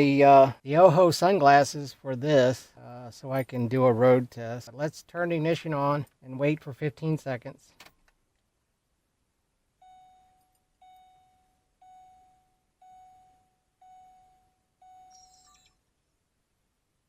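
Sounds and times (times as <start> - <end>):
dashboard warning chime dinging: 9.8 - 15.8.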